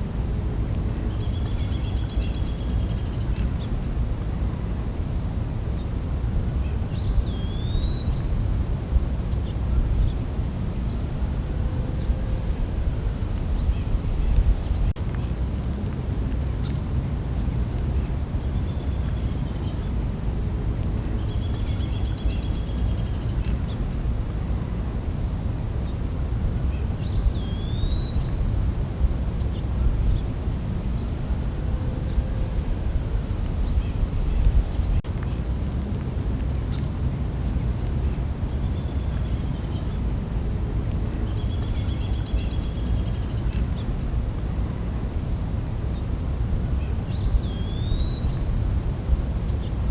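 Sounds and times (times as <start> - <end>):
cricket-like chirps: 0.0 - 49.9
high-pitched insect whine: 0.1 - 5.9, 18.4 - 31.3
steady low rumble: 6.3 - 16.0, 28.0 - 36.1.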